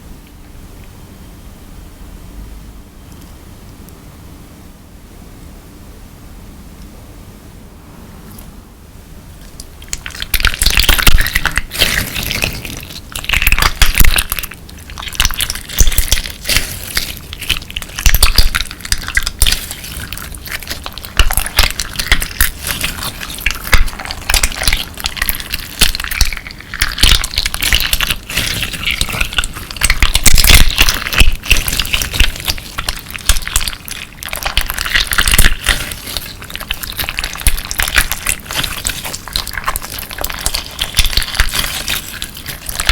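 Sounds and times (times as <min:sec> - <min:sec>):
slime with beads crunching: 0:09.4 - 0:42.9.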